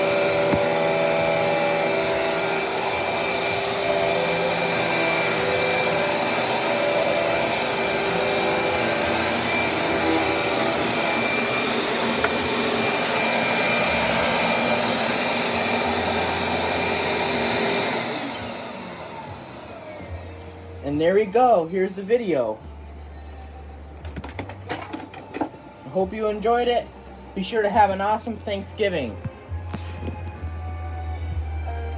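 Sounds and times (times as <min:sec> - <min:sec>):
vacuum cleaner running: 0:00.0 - 0:22.7.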